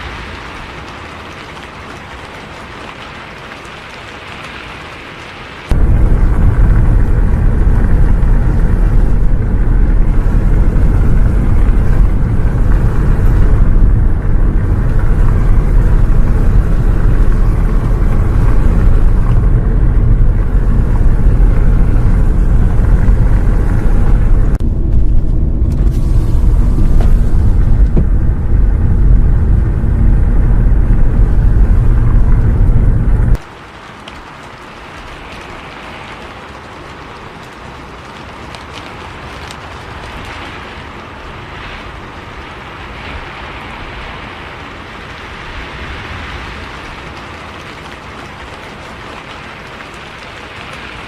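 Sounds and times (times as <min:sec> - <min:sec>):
moving bus rumble: 0:05.7 - 0:33.4.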